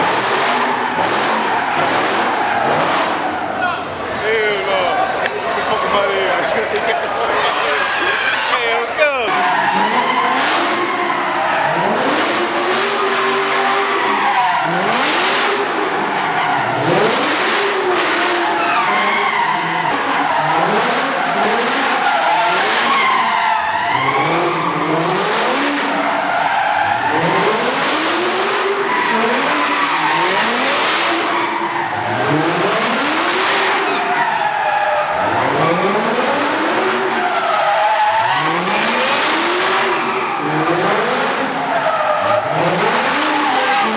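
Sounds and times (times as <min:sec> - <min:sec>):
car engine revving: 0:00.0 - 0:43.9
tyres squealing: 0:00.6 - 0:12.0.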